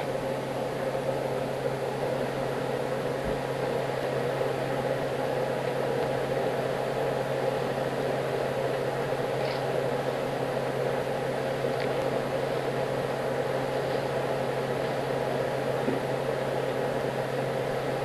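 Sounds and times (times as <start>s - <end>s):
mechanical hum with hiss: 0.0s - 18.0s.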